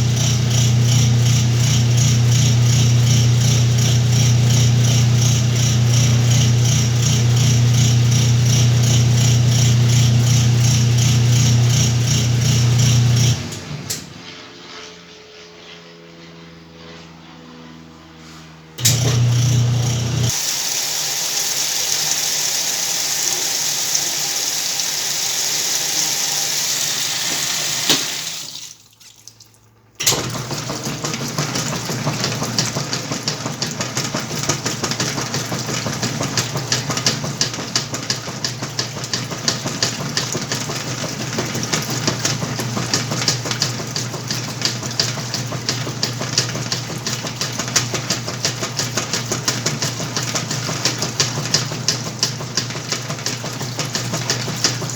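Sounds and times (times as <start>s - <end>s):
washing machine filling with water: 0.0s - 14.1s, 18.8s - 54.9s
washing machine motor humming: 0.0s - 14.2s, 18.8s - 28.9s, 29.9s - 54.9s
washing machine click: 27.1s - 28.6s, 30.0s - 54.9s.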